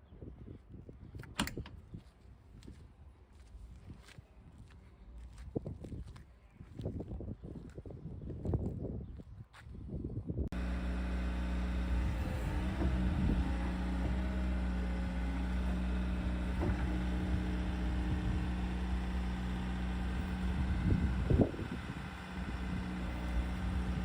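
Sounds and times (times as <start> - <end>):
loader diesel engine idling: 10.5 - 24.0.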